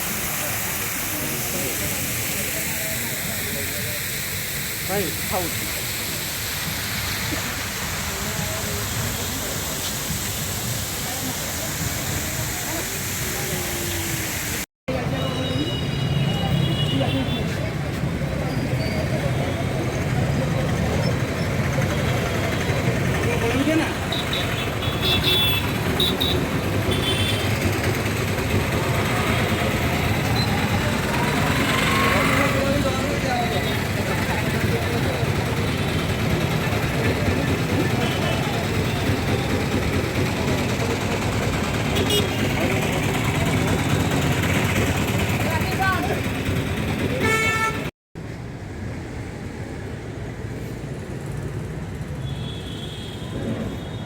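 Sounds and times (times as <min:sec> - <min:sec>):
town traffic: 0:00.0 - 0:54.0
car horn: 0:24.1 - 0:27.6, 0:42.0 - 0:42.5, 0:47.2 - 0:47.9.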